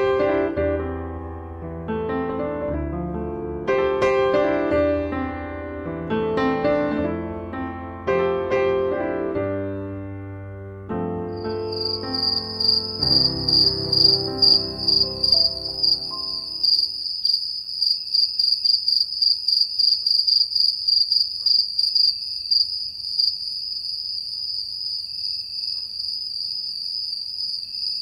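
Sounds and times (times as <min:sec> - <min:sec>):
soft piano music: 0:00.0 - 0:17.0
crickets chirping: 0:11.3 - 0:28.0.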